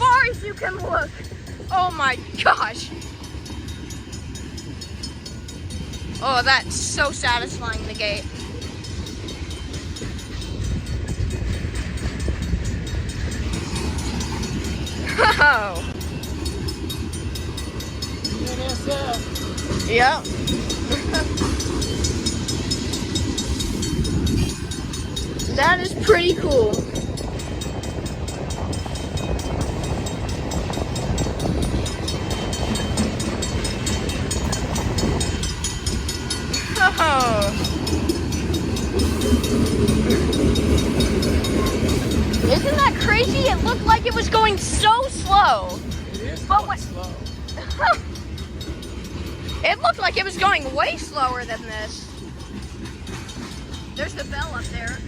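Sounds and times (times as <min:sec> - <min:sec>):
train wheels rumbling on rails: 0:00.0 - 0:55.0
faint rapid ticking: 0:15.8 - 0:55.0.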